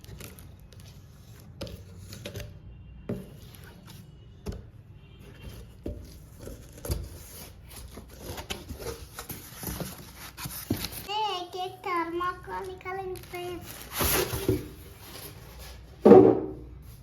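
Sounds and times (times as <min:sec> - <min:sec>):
knocks on cardboard: 0:16.0 - 0:16.6.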